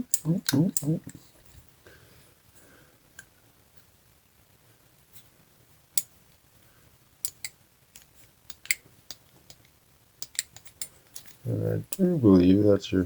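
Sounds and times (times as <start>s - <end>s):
metal parts and tools clicking: 7.2s - 11.4s.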